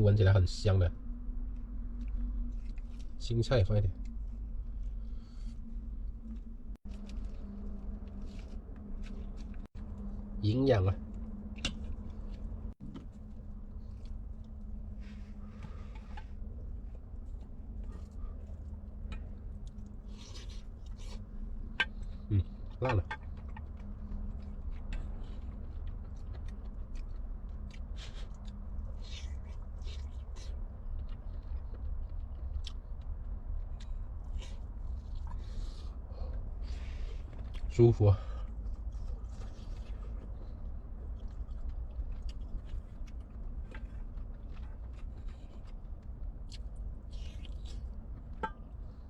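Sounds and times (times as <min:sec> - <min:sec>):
low hum: 0:00.0 - 0:49.0
steady low rumble: 0:00.0 - 0:49.0
person chewing: 0:11.1 - 0:37.7, 0:38.4 - 0:49.0.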